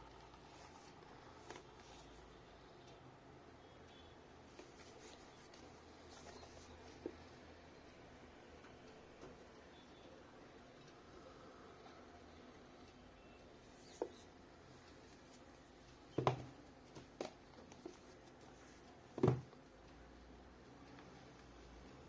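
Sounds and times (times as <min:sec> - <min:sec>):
knocks and taps of packaging: 0:19.2 - 0:19.5.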